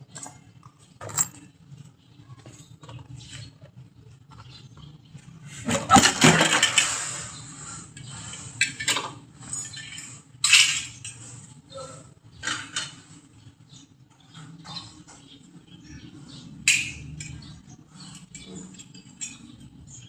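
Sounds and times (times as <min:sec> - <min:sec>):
metal tools clinking: 0:00.1 - 0:01.6, 0:08.0 - 0:11.5, 0:16.6 - 0:20.0.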